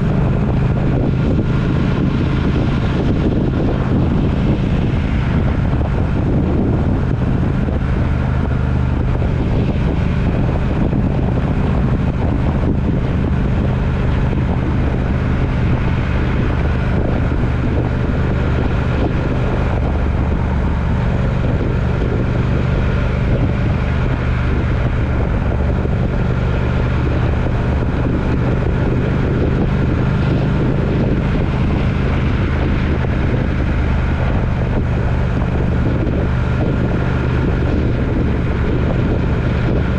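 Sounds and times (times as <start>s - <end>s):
vehicle engine drone: 0.0s - 39.9s
wind noise: 0.0s - 39.9s.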